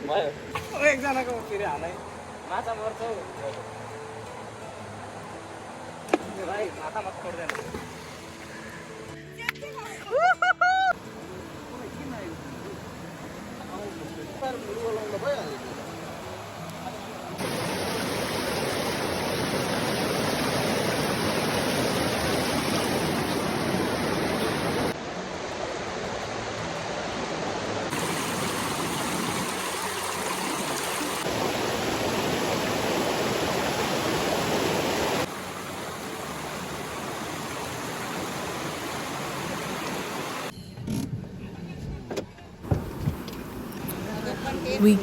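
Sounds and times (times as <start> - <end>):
river water flowing: 0.0 - 40.5.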